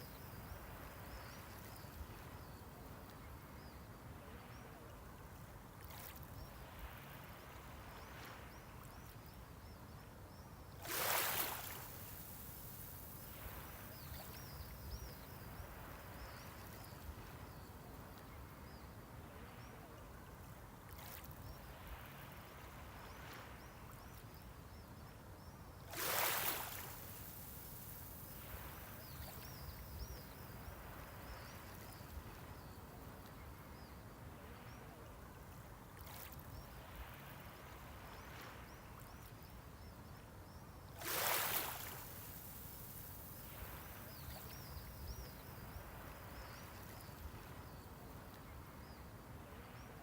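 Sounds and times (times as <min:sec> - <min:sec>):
low wash of sea: 0:00.0 - 0:50.0
small waves breaking: 0:10.8 - 0:18.3, 0:25.9 - 0:33.4, 0:40.9 - 0:48.6.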